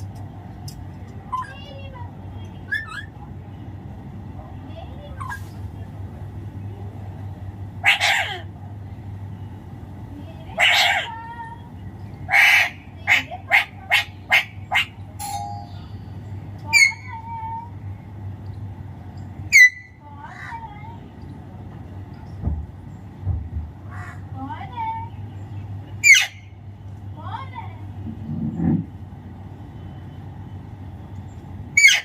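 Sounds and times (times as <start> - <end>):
parakeet squawking: 7.8 - 8.5, 10.5 - 11.3, 12.3 - 15.0, 16.7 - 17.2, 19.5 - 20.6, 26.0 - 26.5, 31.8 - 32.0.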